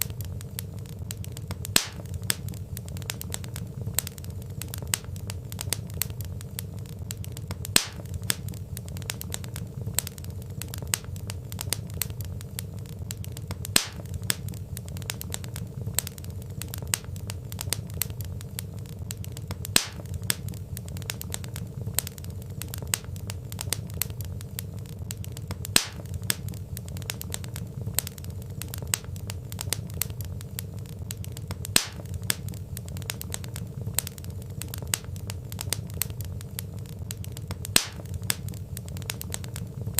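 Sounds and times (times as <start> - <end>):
burning logs crackling: 0.0 - 39.9
low steady rumble: 0.0 - 39.9
loud wood pops: 1.1 - 6.2, 7.1 - 12.2, 13.1 - 16.1, 19.1 - 23.1, 25.1 - 30.3, 31.1 - 36.2, 37.1 - 39.6.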